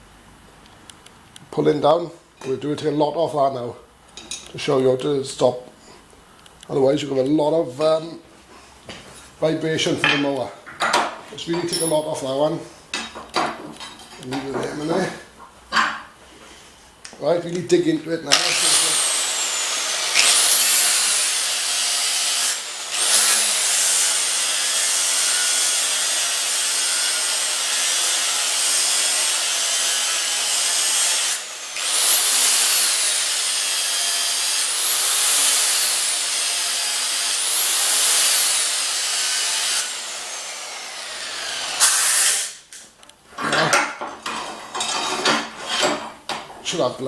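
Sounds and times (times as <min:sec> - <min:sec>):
metal clinks: 0:11.6 - 0:12.2
power grinder grinding metal: 0:18.3 - 0:42.6.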